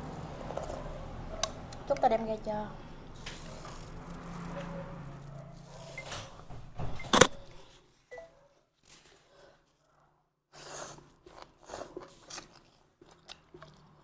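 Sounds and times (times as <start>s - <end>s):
soft chewing: 0.4s - 2.0s, 3.1s - 6.0s, 8.8s - 14.0s
handling noises: 3.2s - 7.8s.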